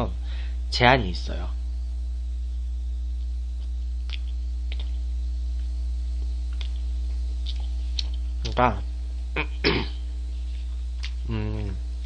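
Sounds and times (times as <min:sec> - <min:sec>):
low electrical hum: 0:00.0 - 0:12.0
chewing mouth clicks: 0:03.6 - 0:05.0, 0:06.5 - 0:08.6, 0:11.0 - 0:11.7.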